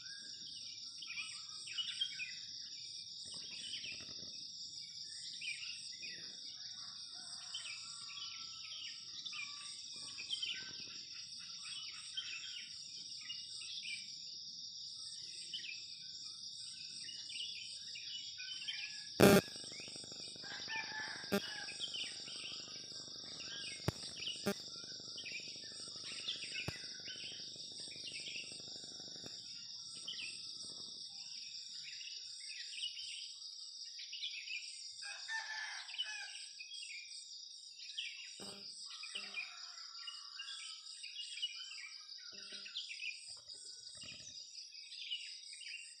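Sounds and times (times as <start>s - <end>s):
insects droning: 0.0s - 36.3s, 37.5s - 45.8s
birds chirping: 19.2s - 20.3s.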